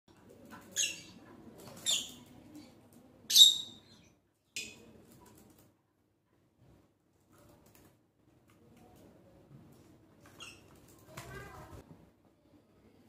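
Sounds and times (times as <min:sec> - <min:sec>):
small bird chirping: 0:03.3 - 0:04.8, 0:10.2 - 0:10.9.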